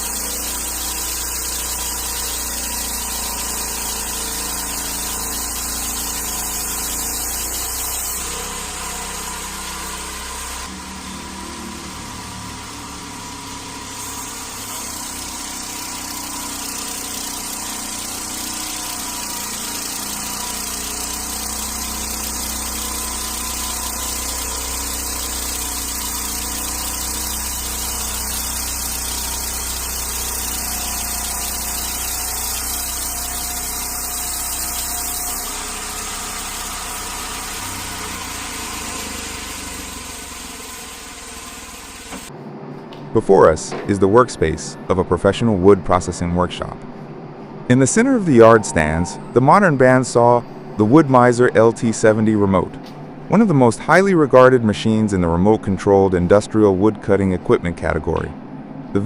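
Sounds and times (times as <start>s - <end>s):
sawmill engine running: 0.0s - 42.3s.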